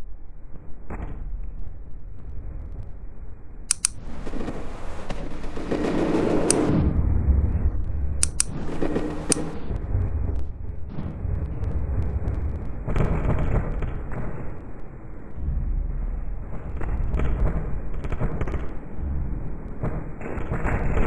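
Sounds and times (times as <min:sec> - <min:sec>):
sharp clicks: 0:03.7 - 0:04.1, 0:06.5 - 0:06.7, 0:08.2 - 0:08.7
rough crackling noise: 0:07.8 - 0:15.5.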